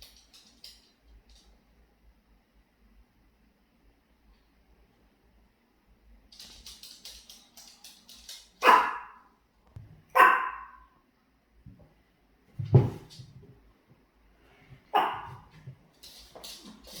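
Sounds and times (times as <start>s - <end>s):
dog barking: 8.6s - 9.2s, 10.1s - 10.9s, 14.9s - 15.5s.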